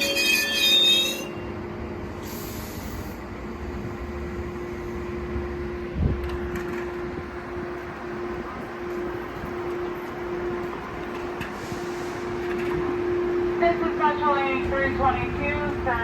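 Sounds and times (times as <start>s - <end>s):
train wheel squeal: 0.0s - 1.5s
standing train humming: 0.0s - 16.0s.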